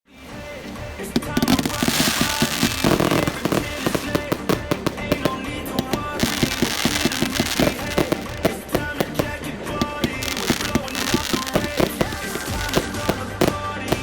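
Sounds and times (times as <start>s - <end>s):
fireworks bangs and crackles: 0.1s - 14.0s
music with singing: 0.1s - 14.0s.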